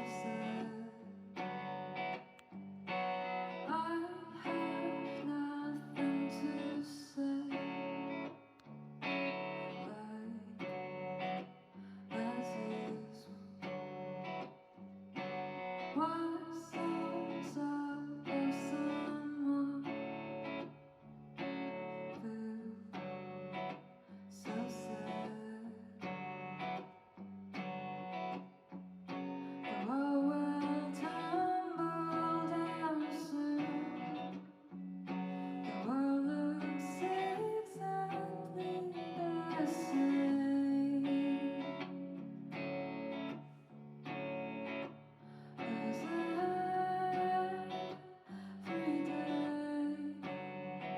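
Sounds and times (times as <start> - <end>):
person singing: 0.0 - 2.2, 3.5 - 8.3, 12.0 - 14.3, 15.8 - 20.7, 24.3 - 26.2, 29.6 - 42.3, 45.5 - 50.9
strummed guitar chords: 29.1 - 50.9.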